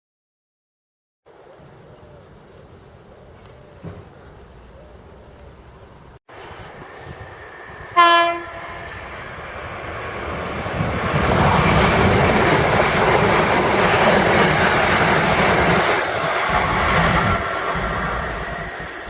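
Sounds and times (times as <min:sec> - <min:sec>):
train wheels and running noise: 0:06.3 - 0:19.0
train horn blast: 0:07.9 - 0:09.0.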